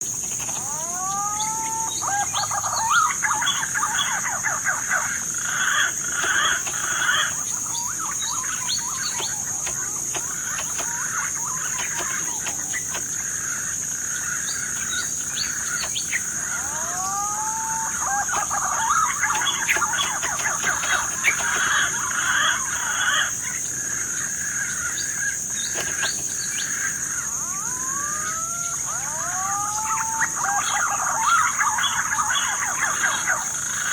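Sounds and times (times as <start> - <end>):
bird whistling and twittering: 0.4 - 13.1, 14.5 - 22.6.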